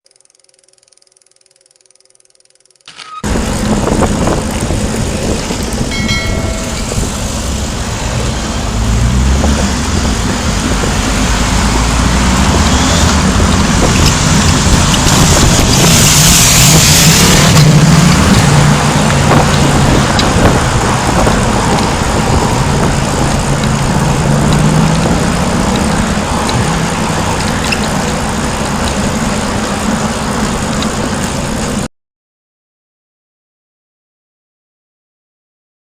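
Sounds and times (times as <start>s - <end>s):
motorbike passing close: 3.2s - 31.9s
vehicle engines humming: 3.2s - 31.9s
wind rush over microphone: 3.3s - 31.2s.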